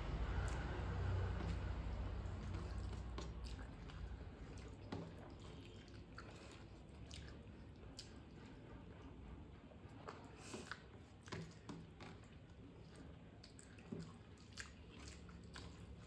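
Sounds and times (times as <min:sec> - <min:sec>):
person chewing food: 0:00.2 - 0:08.6, 0:09.9 - 0:16.0.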